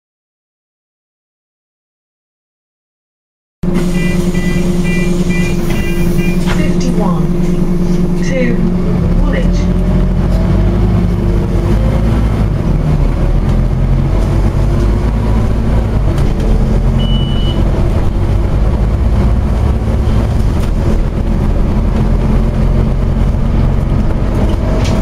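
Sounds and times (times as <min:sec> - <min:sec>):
bus diesel engine running: 0:03.6 - 0:25.0
short high beep: 0:03.9 - 0:06.5, 0:17.0 - 0:17.6.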